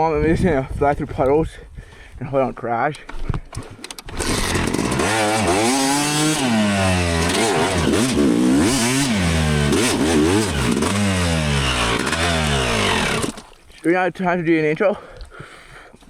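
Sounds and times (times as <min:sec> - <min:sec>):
dirt bike engine revving: 0:03.6 - 0:13.5.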